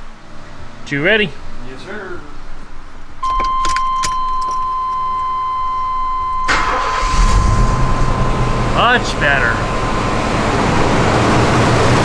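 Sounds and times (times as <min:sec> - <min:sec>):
keys clicking in ignition: 0:03.2 - 0:05.3
steady high tone: 0:03.2 - 0:12.0
engine starting: 0:06.5 - 0:07.8.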